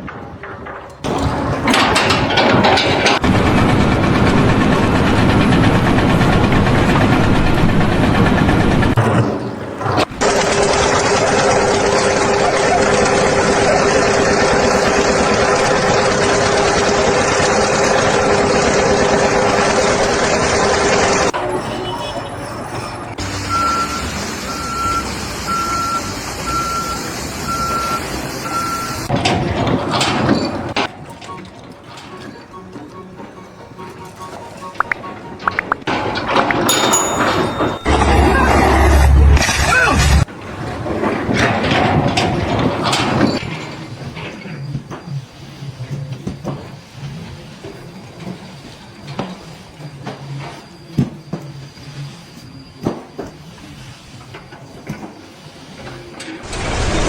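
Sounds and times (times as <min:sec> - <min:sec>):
engine running: 0:03.2 - 0:09.0
reversing alarm beeping: 0:21.4 - 0:29.1, 0:36.7 - 0:39.9.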